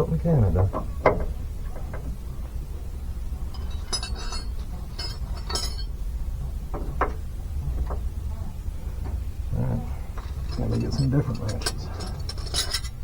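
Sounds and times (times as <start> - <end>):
metal wrenches clinking: 3.5 - 5.9, 10.2 - 13.0.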